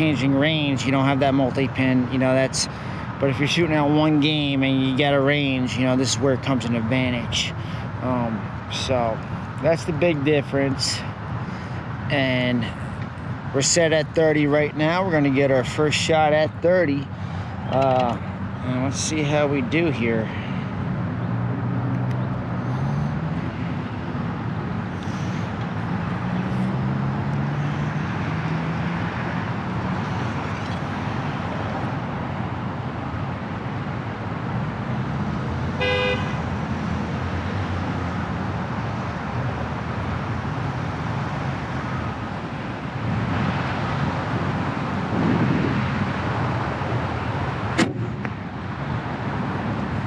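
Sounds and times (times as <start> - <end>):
road traffic: 0.0 - 50.0
car horn toot: 35.8 - 36.4.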